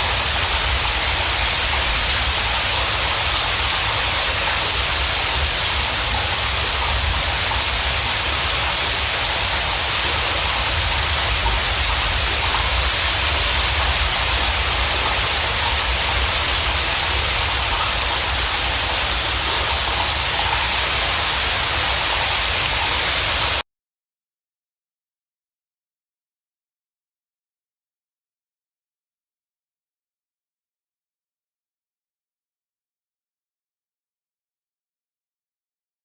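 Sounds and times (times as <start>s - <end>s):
steady rain falling: 0.0s - 23.6s.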